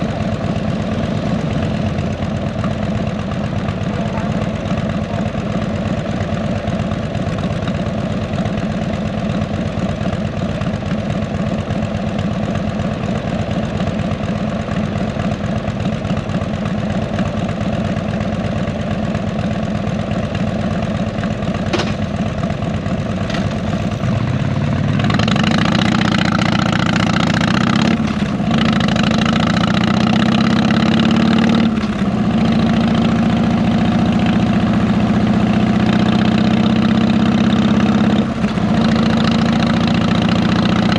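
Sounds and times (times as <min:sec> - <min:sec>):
motorcycle engine idling: 0:00.0 - 0:40.9
motorcycle pulling away: 0:00.0 - 0:40.9.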